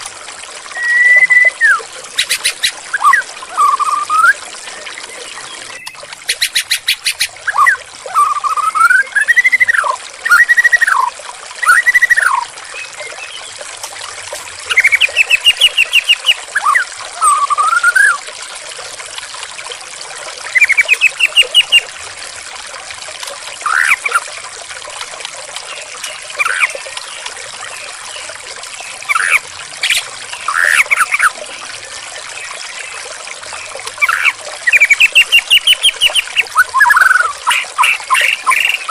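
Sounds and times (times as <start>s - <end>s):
trickling water: 0.0s - 38.9s
bird singing whistled phrases: 0.7s - 13.5s, 14.7s - 18.2s, 20.5s - 21.8s, 34.0s - 38.9s.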